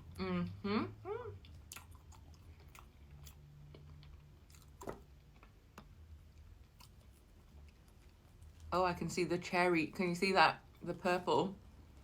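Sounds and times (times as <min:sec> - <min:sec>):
person chewing with wet clicks: 0:01.4 - 0:08.7.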